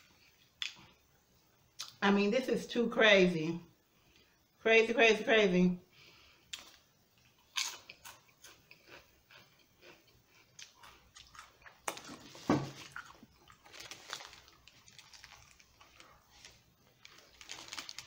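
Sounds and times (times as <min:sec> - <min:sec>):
person chewing a sandwich: 0:06.4 - 0:18.0.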